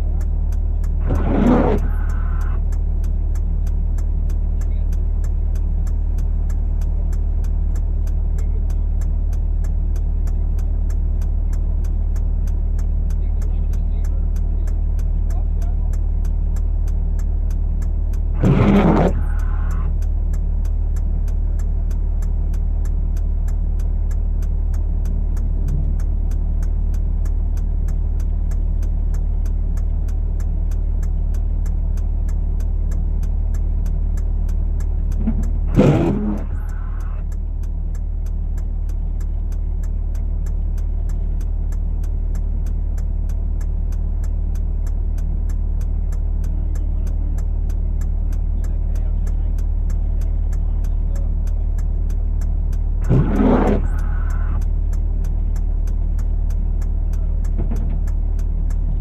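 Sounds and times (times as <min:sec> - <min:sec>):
road noise inside cab: 0:00.0 - 0:59.0
vehicle engine drone: 0:00.0 - 0:59.0
short loud noises: 0:35.3 - 0:37.2.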